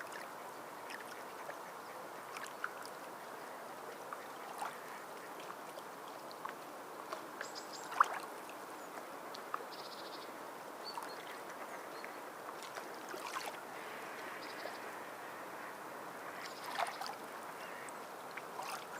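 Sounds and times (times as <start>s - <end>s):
sea water lapping: 0.8s - 6.6s, 10.8s - 18.9s
small splashes and clicks: 4.1s - 8.3s.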